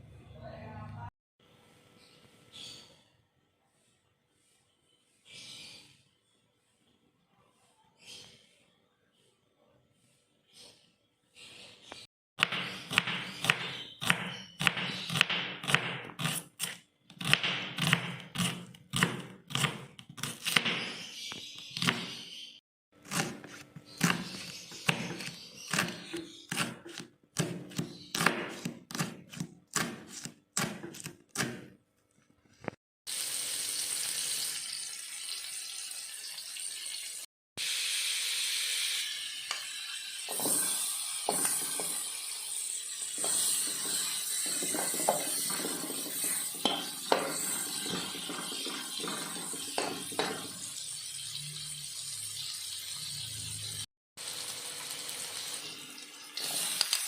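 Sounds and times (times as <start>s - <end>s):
knife chopping on cutting board: 12.4s - 21.0s, 23.0s - 31.7s, 43.2s - 50.5s
food frying in a pan: 33.1s - 57.0s.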